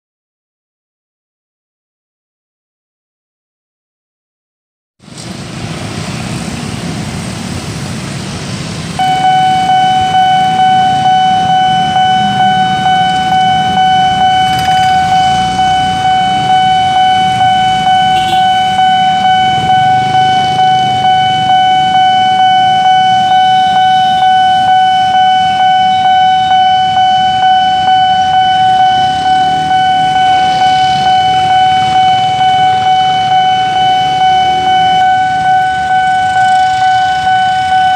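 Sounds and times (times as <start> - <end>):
road traffic hum: 5.0 - 37.9
level crossing warning alarm: 9.0 - 37.9.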